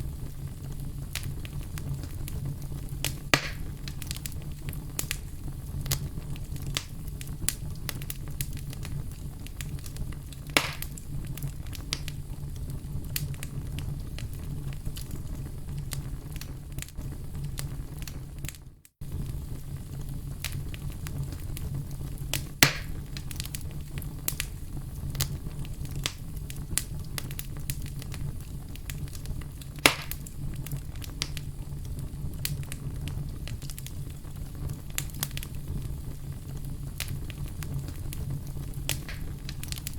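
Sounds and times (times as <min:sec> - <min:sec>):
fire pops: 0:00.0 - 0:39.9
wood fire crackling: 0:00.0 - 0:39.9.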